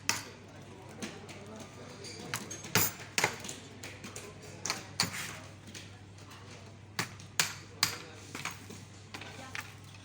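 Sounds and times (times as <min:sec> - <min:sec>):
utensils clinking against dishes: 0:01.2 - 0:06.5.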